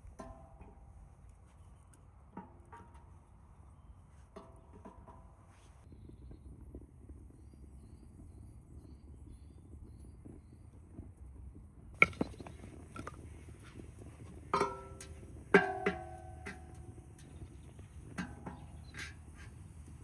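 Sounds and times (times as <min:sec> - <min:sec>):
low steady rumble: 0:05.9 - 0:20.0.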